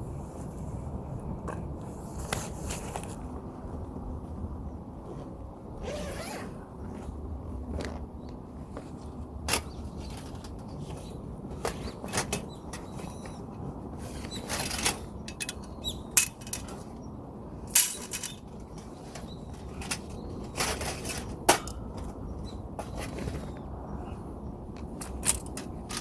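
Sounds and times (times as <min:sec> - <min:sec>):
camping cookware clinking: 0:14.4 - 0:16.9, 0:17.7 - 0:22.2.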